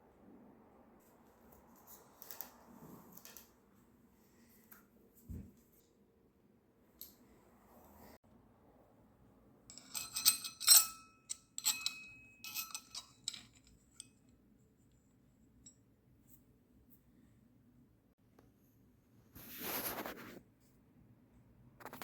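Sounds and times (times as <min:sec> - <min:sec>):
small metal objects clinking: 0:09.7 - 0:14.1.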